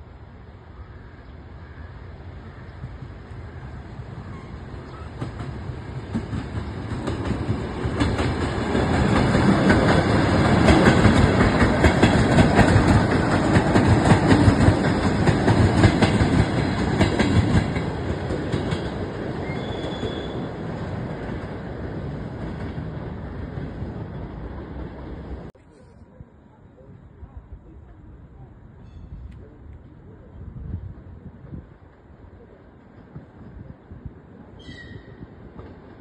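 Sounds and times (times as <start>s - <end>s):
train wheels clattering: 4.4s - 20.5s.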